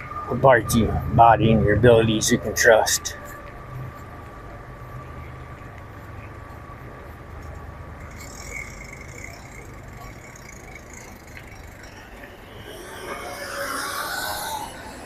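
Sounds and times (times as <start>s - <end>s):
bicycle riding wind and rolling noise: 0.0s - 15.0s.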